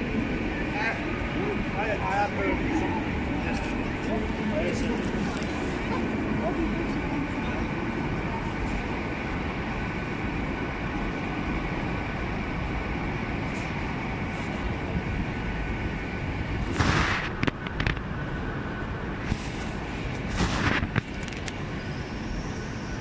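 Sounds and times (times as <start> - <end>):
passenger train rumbling: 0.0 - 23.0
loud hiss: 16.6 - 17.4.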